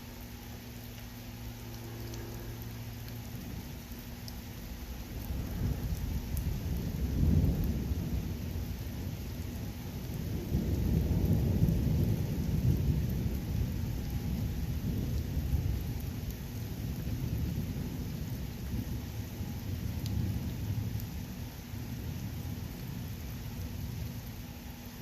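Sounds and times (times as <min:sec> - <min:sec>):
steady rain: 0:00.0 - 0:25.0
low rumbling thunder: 0:05.1 - 0:24.4.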